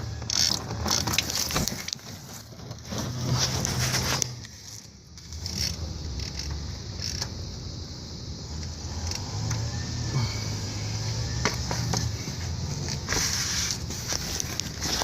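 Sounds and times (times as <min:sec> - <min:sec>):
steady low hum: 0:00.0 - 0:15.0
hand tools clicking and scraping: 0:00.1 - 0:07.3.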